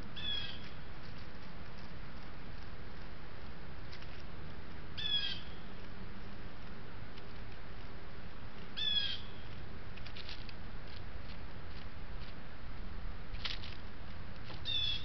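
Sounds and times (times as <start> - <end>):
wild bird calling: 0.2 - 0.8, 5.0 - 5.7, 8.8 - 9.4, 14.6 - 15.0.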